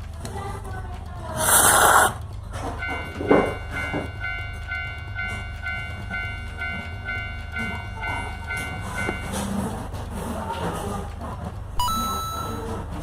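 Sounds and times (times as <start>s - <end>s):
train low rumble: 0.0s - 13.0s
electronic warning tone: 11.8s - 13.0s.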